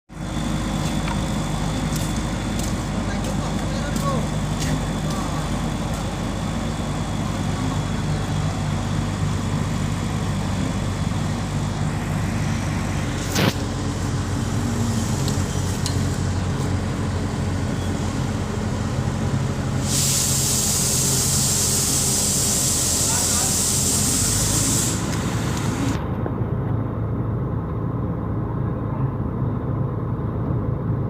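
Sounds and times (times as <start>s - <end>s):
crane diesel engine running: 0.1s - 31.0s
steady hiss: 19.8s - 26.0s.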